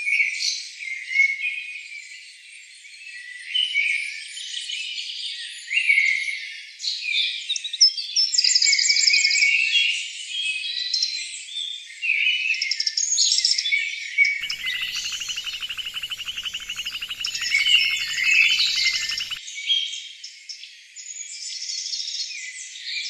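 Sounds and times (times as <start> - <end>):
rapid bird trill: 14.4 - 19.4
small birds chirping: 14.4 - 19.4.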